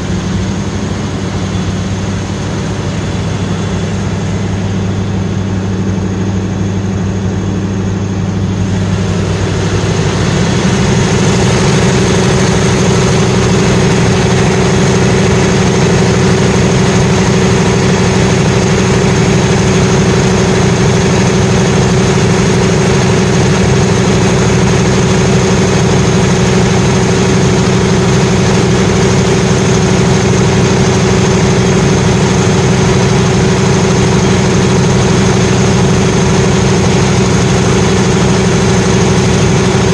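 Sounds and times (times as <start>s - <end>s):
diesel generator running: 0.0s - 39.9s.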